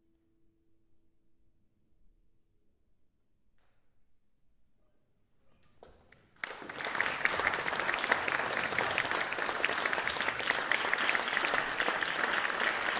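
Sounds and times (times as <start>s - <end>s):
audience applause: 6.4s - 12.9s.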